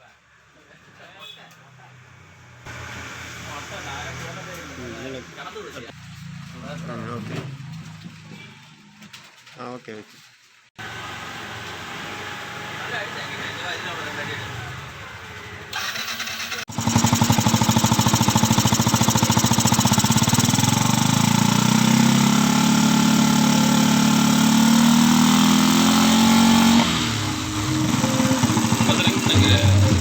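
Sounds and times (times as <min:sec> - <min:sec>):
motorcycle engine running: 0:16.7 - 0:30.0.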